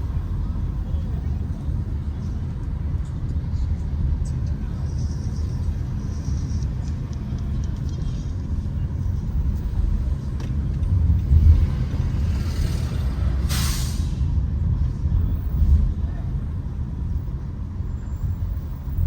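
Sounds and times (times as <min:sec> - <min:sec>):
passing vehicles rumbling: 0:00.0 - 0:19.0
sharp hiss of released air: 0:13.4 - 0:14.2.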